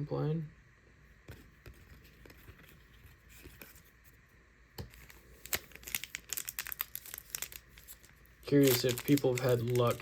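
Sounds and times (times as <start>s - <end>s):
trading cards rustling: 4.8s - 10.0s.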